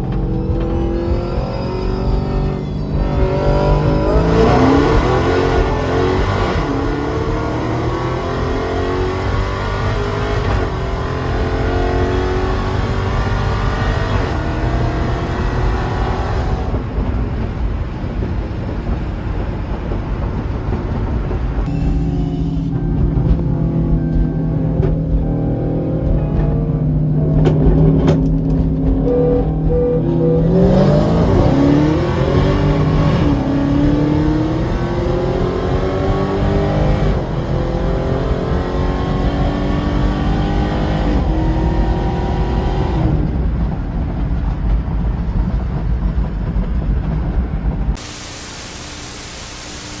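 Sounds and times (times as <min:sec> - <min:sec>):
car engine accelerating: 0:00.0 - 0:46.6
steady hiss: 0:48.0 - 0:50.0.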